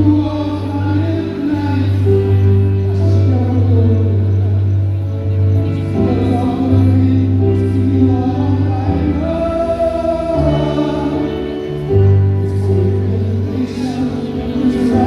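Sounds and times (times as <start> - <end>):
slow held bass notes: 0.0 - 15.0
choir singing: 6.0 - 15.0.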